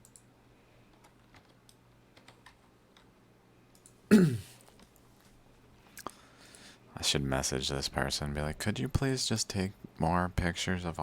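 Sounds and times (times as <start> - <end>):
person vocal sound: 4.1 - 4.5.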